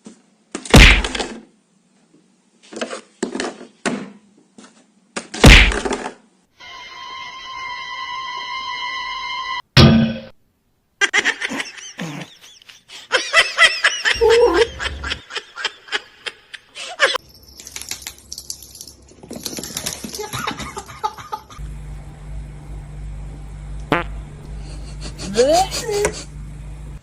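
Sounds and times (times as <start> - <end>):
laughter: 11.0 - 17.2, 20.2 - 21.6
steady low hum: 14.1 - 15.4, 20.4 - 27.0.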